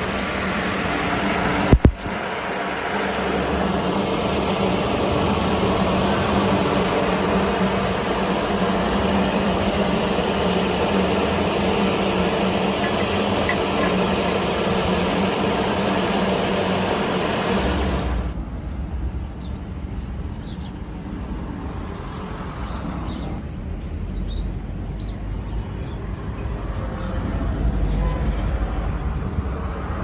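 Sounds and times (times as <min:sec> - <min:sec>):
welding arc frying hiss: 0:00.0 - 0:18.3.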